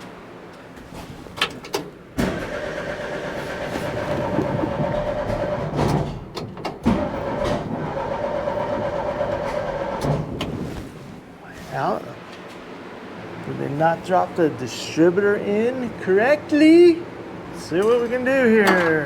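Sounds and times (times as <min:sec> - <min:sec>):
engine cranking on starter motor: 0:02.2 - 0:10.7.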